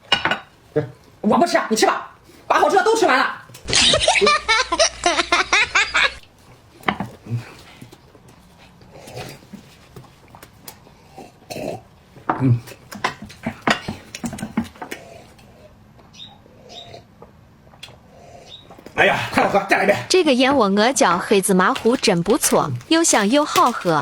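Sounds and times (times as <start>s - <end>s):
voice: 19.0s - 24.0s.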